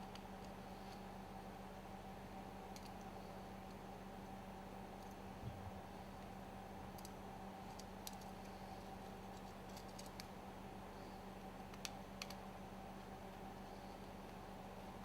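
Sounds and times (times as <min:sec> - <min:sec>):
steady low hum: 0:00.0 - 0:15.0
small tools clicking: 0:09.3 - 0:10.3.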